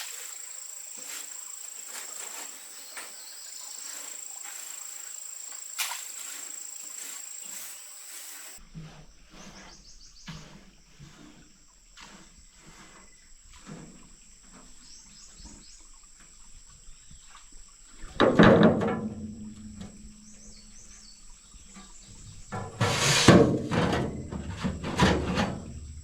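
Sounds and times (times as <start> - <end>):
bird chirps: 0.0 - 8.6
high insect drone: 0.0 - 8.6.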